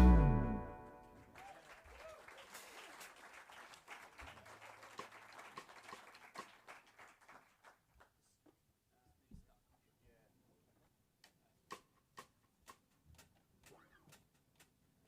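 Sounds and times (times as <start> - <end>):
band chord: 0.0 - 1.1
sparse applause: 0.0 - 7.7.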